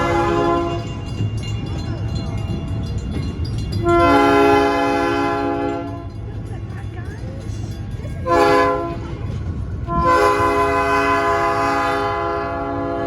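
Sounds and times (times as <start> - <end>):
locomotive air horn blasts: 0.0 - 1.0, 3.8 - 6.1, 8.2 - 9.1, 9.9 - 13.0
locomotive diesel engine rumble: 0.0 - 13.0.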